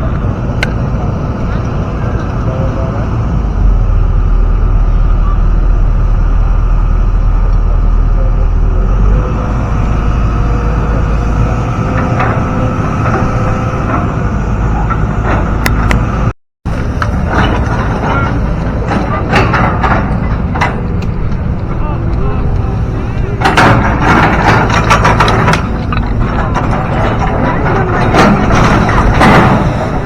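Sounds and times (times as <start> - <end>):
motor vehicle rumbling: 0.0 - 30.0
clicks and knocks: 17.0 - 29.9.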